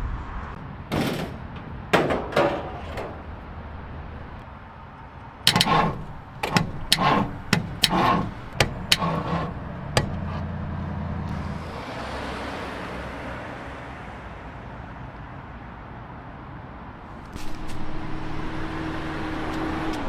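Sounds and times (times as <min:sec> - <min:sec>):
low mechanical hum: 0:05.4 - 0:11.4
sharp knocks and clicks: 0:05.5 - 0:10.5.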